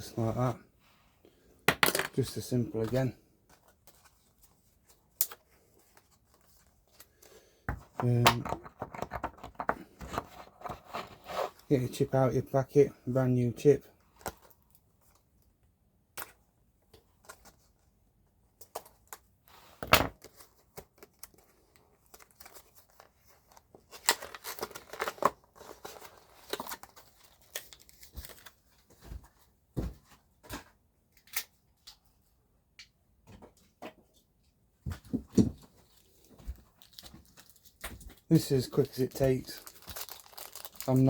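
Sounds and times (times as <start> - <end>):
plastic packet crinkling: 36.7 - 41.0.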